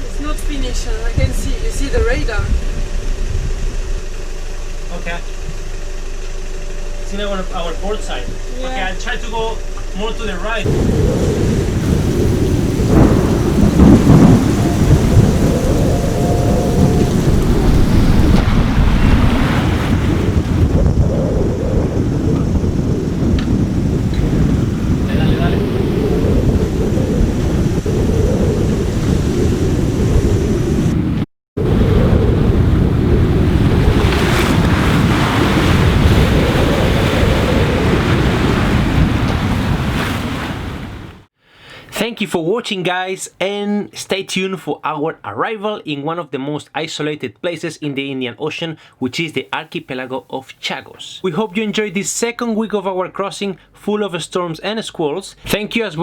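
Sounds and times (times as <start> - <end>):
wind buffeting microphone: 0.0 - 4.8, 10.6 - 41.3
sea rushing: 10.6 - 41.3
heavy rain: 10.7 - 39.3
thin steady whistle: 14.2 - 18.4.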